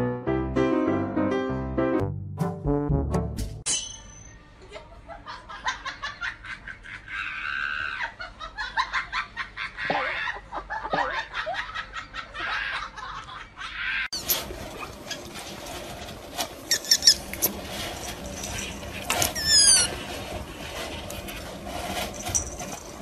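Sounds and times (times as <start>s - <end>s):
people laughing: 4.6s - 14.1s.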